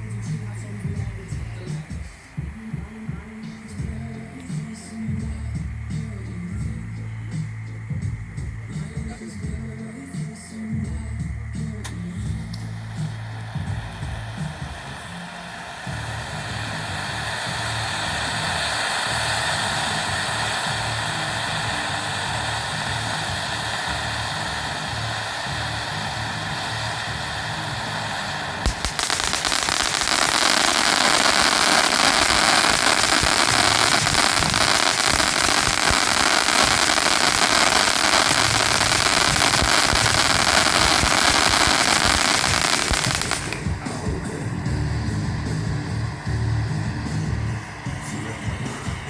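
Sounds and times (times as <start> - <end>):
firework fuse hissing: 0.0 - 49.0
fireworks crackling: 0.0 - 49.0
firework bang: 28.6 - 46.4.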